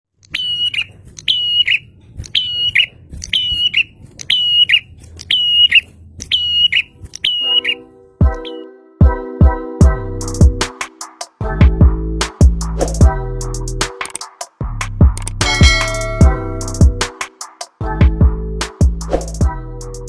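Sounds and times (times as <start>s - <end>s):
bird calling whistle phrase: 0.3s - 7.8s
music with low beat: 8.2s - 20.0s.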